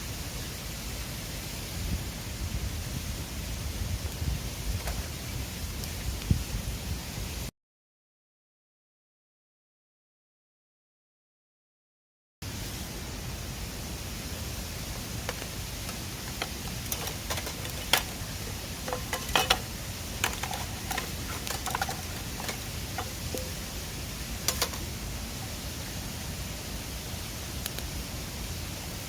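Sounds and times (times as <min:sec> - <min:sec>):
river rushing: 0:12.5 - 0:29.0
sharp clicks and knocks: 0:15.2 - 0:23.6, 0:24.5 - 0:24.9.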